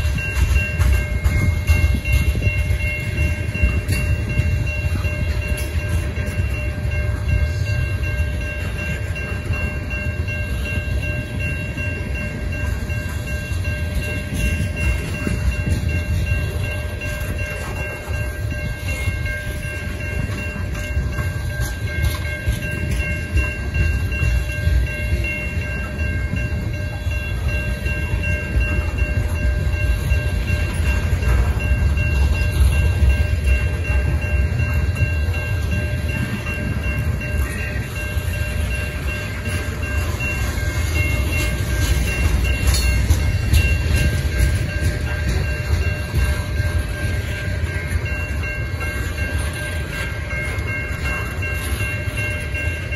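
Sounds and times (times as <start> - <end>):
crossing signal bell ringing: 0.0 - 52.9
freight train wheels rumbling on rail: 0.0 - 52.9.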